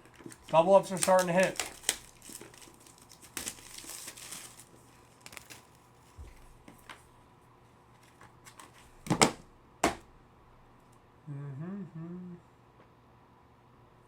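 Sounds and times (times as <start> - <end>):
wrapper rustling: 0.0 - 7.0.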